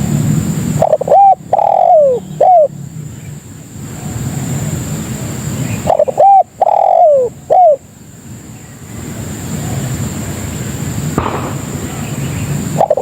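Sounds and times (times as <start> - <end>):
low background noise: 0.0 - 13.0
dove cooing: 0.8 - 2.7, 5.8 - 7.8, 11.2 - 13.0.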